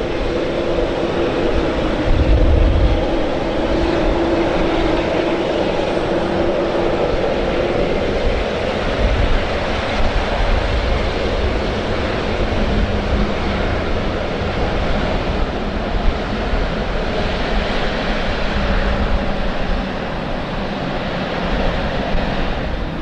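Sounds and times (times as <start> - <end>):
gusty low rumble: 0.0 - 23.0
jet engines running: 0.0 - 23.0.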